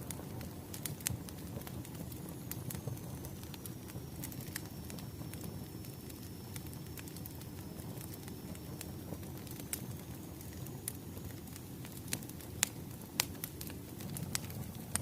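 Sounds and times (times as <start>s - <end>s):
low rumble of flames: 0.0s - 15.0s
firewood popping and snapping: 0.1s - 2.9s, 9.3s - 15.0s.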